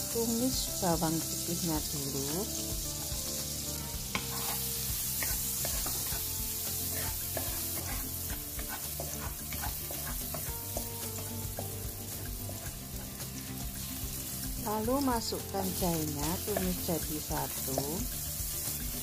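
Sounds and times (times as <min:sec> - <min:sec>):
garlic sizzling in a wok: 0:00.0 - 0:19.0
wooden spatula scraping a pan: 0:04.0 - 0:13.9.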